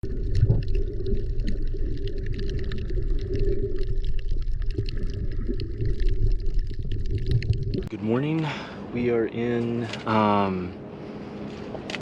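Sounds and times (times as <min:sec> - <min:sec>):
water sloshing and gurgling: 0:00.0 - 0:08.0
steady low rumble: 0:00.0 - 0:12.0.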